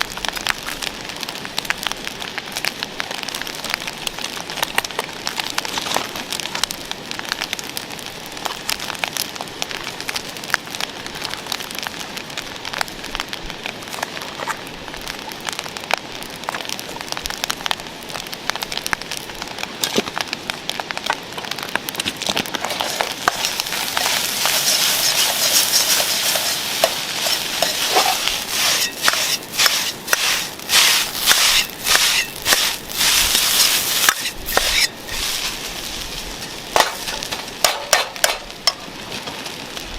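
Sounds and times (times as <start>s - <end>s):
campfire crackling: 0.0s - 39.9s
food sizzling in a pan: 22.6s - 39.0s.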